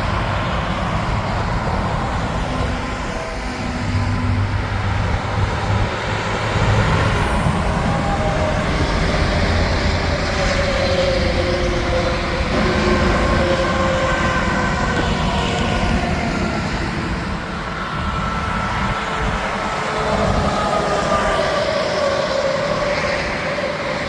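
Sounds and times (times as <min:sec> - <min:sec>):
heavy highway traffic roar: 0:00.0 - 0:24.0.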